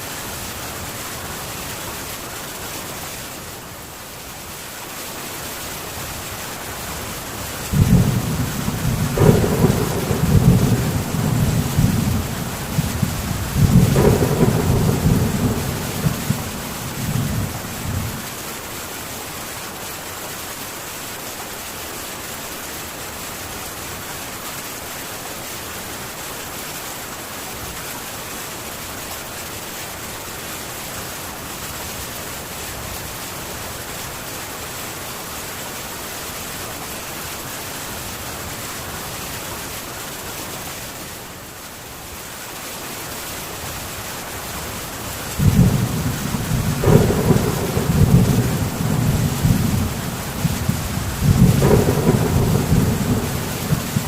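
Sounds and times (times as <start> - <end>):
heavy rain on a tin roof: 0.0 - 54.0
low thunder rumble: 7.7 - 18.2, 45.4 - 54.0.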